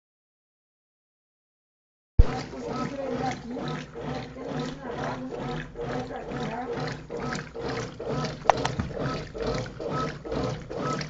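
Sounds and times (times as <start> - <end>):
washing machine agitating: 2.2 - 11.0.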